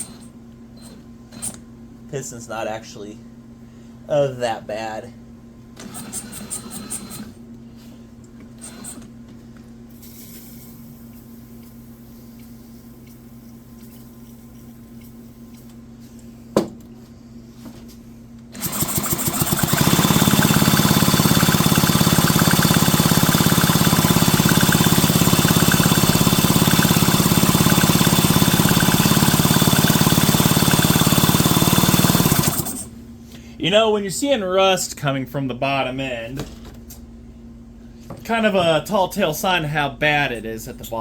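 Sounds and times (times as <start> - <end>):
machine running with fast rattle: 5.8 - 7.4, 18.5 - 32.9.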